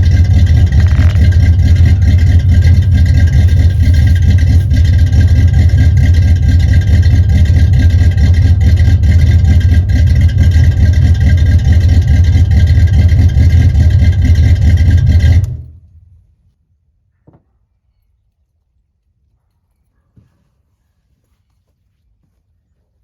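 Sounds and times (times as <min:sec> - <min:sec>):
car engine idling lumpily: 0:00.0 - 0:16.2.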